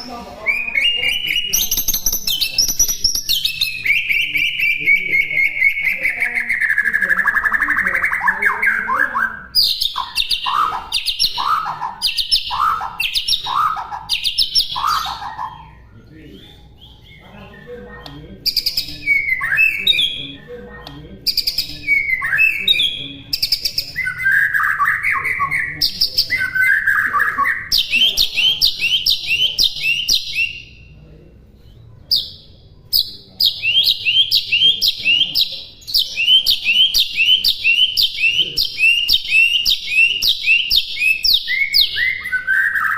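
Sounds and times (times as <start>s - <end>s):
bird whistles and chirps: 33.5s - 42.9s.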